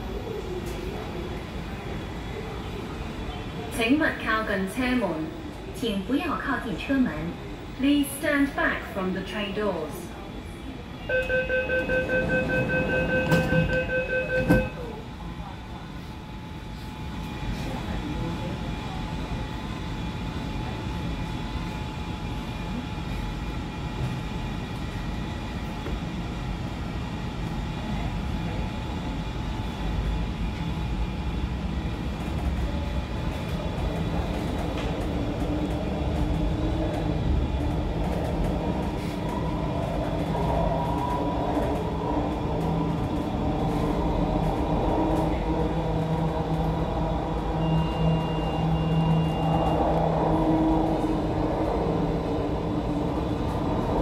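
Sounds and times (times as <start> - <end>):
train running gear rumble: 11.6 - 54.0.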